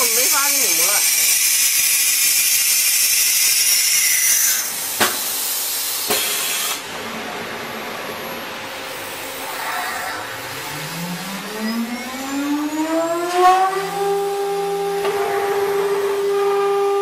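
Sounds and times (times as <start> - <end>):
machine spindle whine rising: 7.0 - 17.0.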